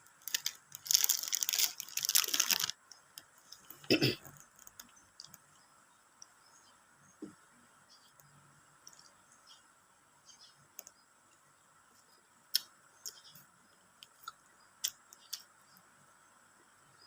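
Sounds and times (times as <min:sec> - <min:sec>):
high-pitched background hiss: 0:00.0 - 0:17.0
mouth clicks and chewing smacks: 0:14.0 - 0:15.5.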